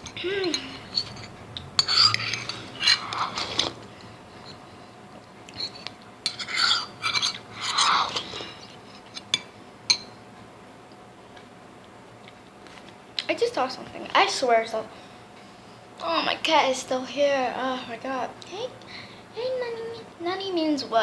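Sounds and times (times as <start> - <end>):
utensil scraping a soup bowl: 0.5 - 4.6, 5.5 - 8.4.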